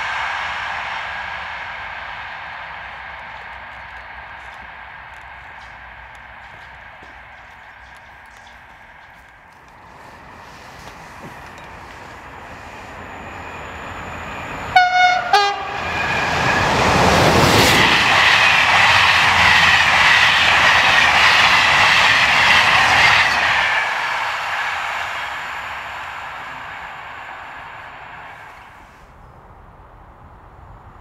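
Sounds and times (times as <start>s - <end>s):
train wheels clattering: 0.0s - 29.0s
train rumble: 0.0s - 31.0s
train horn blasts: 14.7s - 15.9s.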